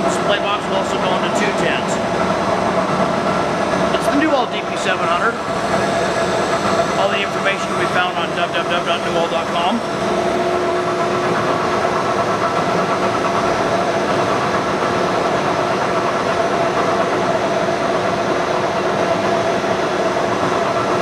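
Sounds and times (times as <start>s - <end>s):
gear whine: 0.0s - 21.0s
lathe mechanical hum: 0.0s - 21.0s.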